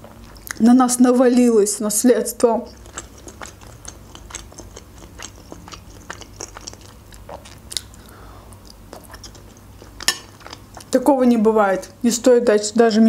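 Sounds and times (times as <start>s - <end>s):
sharp mouth clicks: 2.7s - 9.6s
person chewing dumplings: 2.7s - 11.0s.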